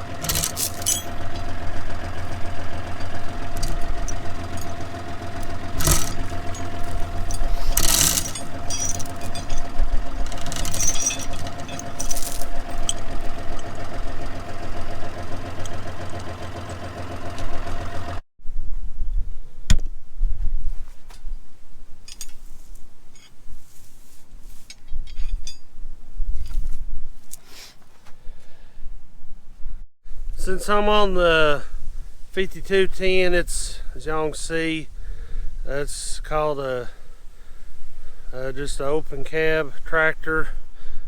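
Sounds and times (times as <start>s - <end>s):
tractor diesel engine running: 0.0s - 18.3s.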